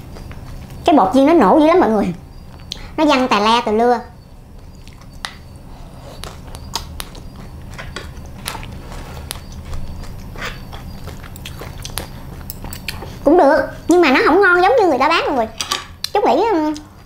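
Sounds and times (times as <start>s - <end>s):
person chewing crispy food: 4.6s - 14.0s.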